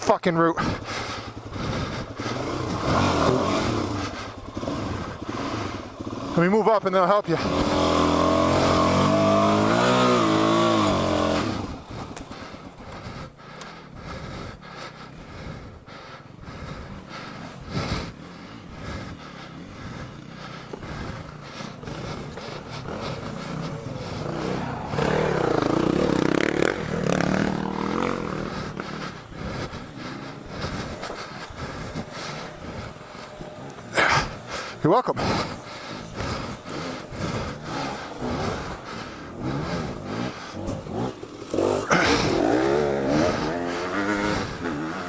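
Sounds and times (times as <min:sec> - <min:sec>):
dirt bike engine running: 0:00.0 - 0:45.0
motorcycle engine revving: 0:00.0 - 0:45.0.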